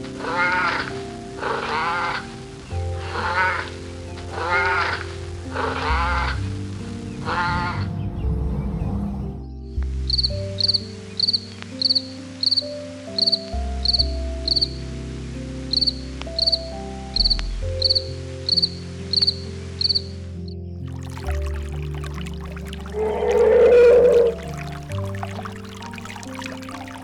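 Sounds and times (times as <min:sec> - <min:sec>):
background music with low notes: 0:00.0 - 0:27.0
insect chirping: 0:21.0 - 0:27.0.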